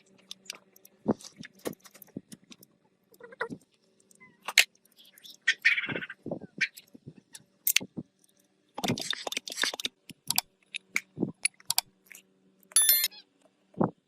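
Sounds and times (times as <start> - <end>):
metal parts clicking and knocking: 7.7 - 13.1.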